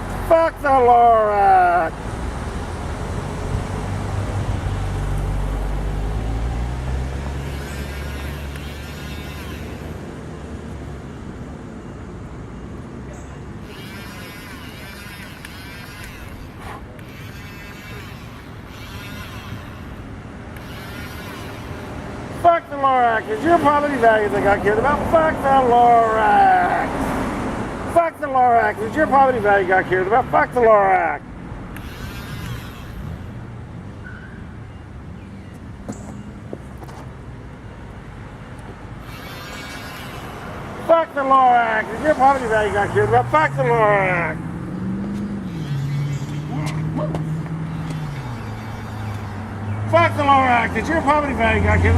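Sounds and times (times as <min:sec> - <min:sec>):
faint high trills: 0:07.4 - 0:10.0, 0:13.6 - 0:22.0, 0:31.8 - 0:33.4, 0:39.0 - 0:40.7, 0:45.4 - 0:51.2.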